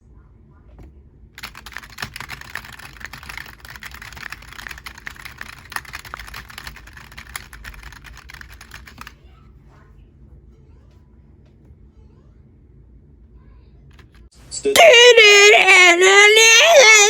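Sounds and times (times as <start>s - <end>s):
small plastic parts clicking and rattling: 1.4s - 9.2s, 13.9s - 14.3s.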